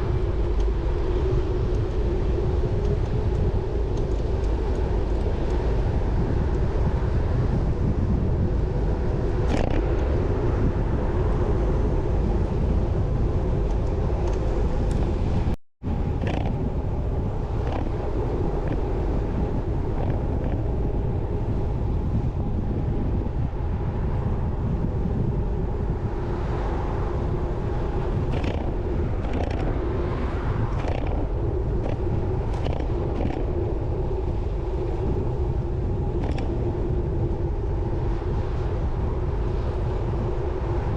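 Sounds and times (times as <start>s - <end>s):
wind buffeting microphone: 0.0s - 40.9s
road and traffic noise: 13.5s - 37.0s.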